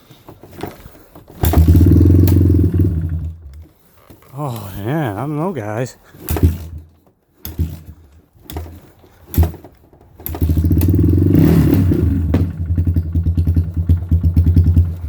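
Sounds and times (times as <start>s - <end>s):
quad engine kick-starting: 0.4s - 3.8s, 6.2s - 15.0s
engine pops: 1.3s - 3.6s, 9.3s - 15.0s.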